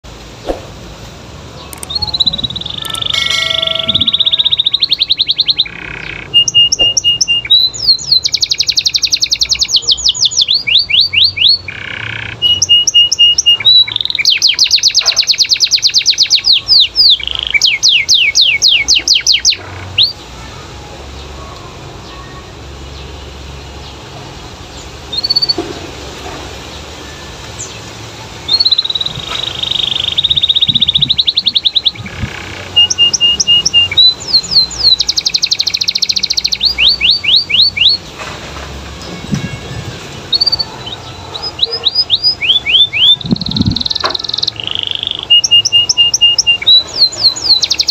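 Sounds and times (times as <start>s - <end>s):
canary singing rapid trills: 1.5s - 20.5s, 24.7s - 25.6s, 27.1s - 38.0s, 40.2s - 47.9s
canary short call: 1.9s - 4.8s.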